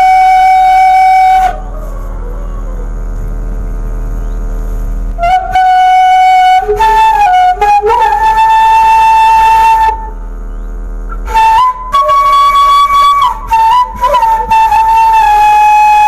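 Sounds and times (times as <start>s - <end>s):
flute melody: 0.0s - 2.5s, 5.2s - 10.2s, 11.1s - 16.0s
low hum: 0.0s - 16.0s.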